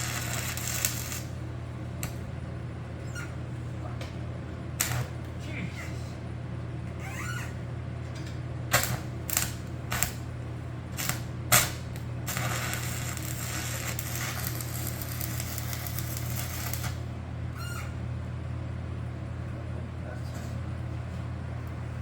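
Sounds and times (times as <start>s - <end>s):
welding arc crackling: 0.0s - 2.3s, 4.8s - 5.4s, 8.7s - 17.1s
steady low hum: 0.0s - 22.0s.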